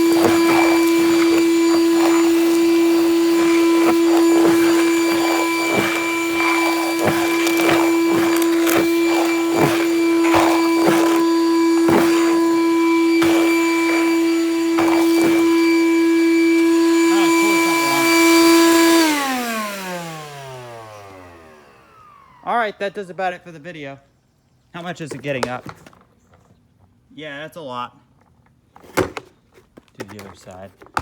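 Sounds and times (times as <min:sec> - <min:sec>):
debris rattling up vacuum hose: 0:00.0 - 0:19.4
shop vacuum motor whining: 0:00.0 - 0:22.9.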